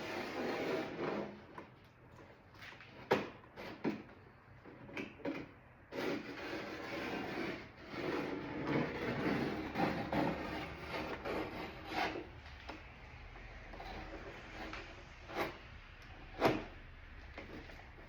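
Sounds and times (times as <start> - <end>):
tape rubbing and scraping: 0.0 - 1.7, 5.9 - 18.0.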